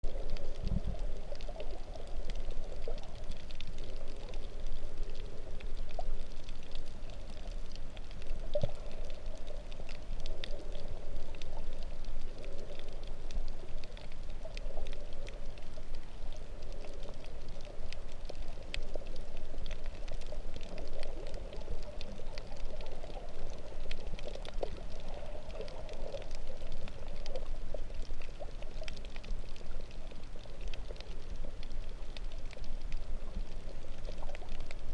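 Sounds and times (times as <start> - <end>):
fine crackle of tiny clicks: 0.0 - 34.9
underwater rush of water: 0.0 - 34.9.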